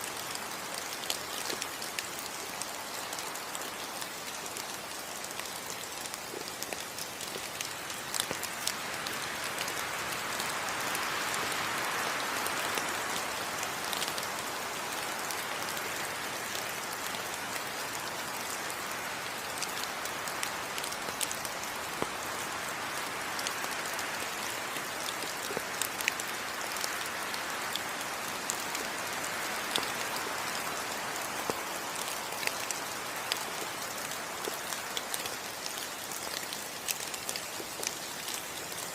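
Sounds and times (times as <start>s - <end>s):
rain on foliage: 0.0s - 38.9s
raindrop ticks: 0.2s - 9.8s, 19.4s - 22.3s, 23.4s - 38.9s.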